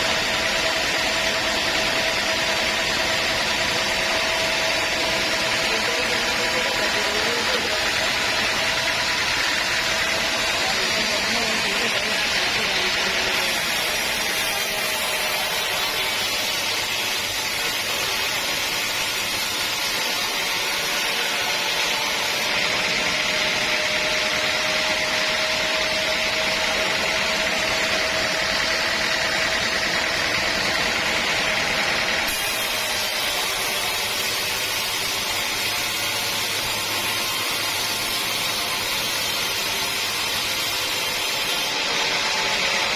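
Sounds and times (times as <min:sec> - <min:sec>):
saw cutting through log: 0:00.0 - 0:42.9.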